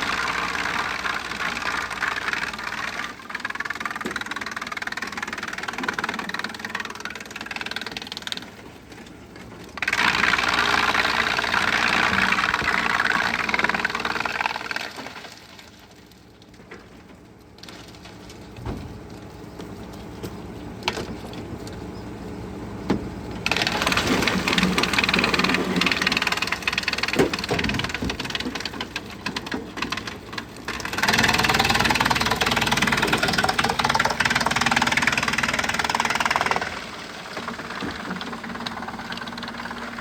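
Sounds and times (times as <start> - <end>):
wood chipper chipping: 0.0 - 40.0
wood cracking and knocking: 22.9 - 36.8.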